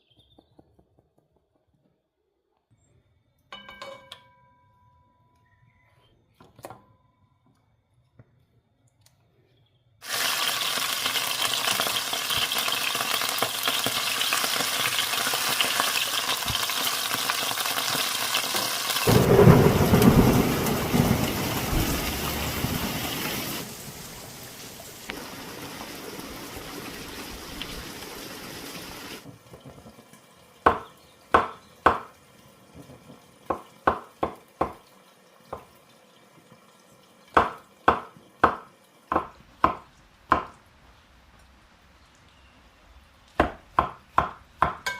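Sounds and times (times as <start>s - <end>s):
heavy rain pouring: 10.0s - 29.4s
thunder rolling: 19.0s - 28.0s.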